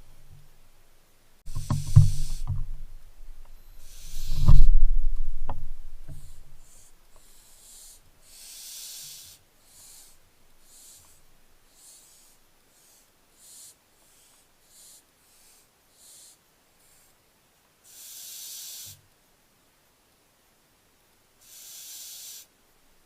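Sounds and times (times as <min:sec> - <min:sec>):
owl chicks hissing: 0:01.5 - 0:02.8, 0:03.6 - 0:04.8, 0:05.8 - 0:17.2, 0:17.8 - 0:19.1, 0:21.4 - 0:22.6
loud low bump with knocks: 0:01.5 - 0:06.6.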